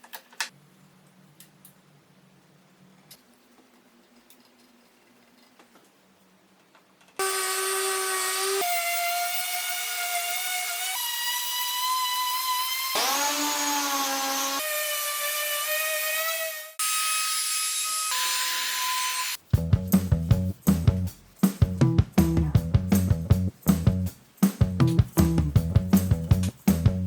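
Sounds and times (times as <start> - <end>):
wood router whining: 7.2 - 19.4
music with drums and plucked strings: 19.6 - 27.0.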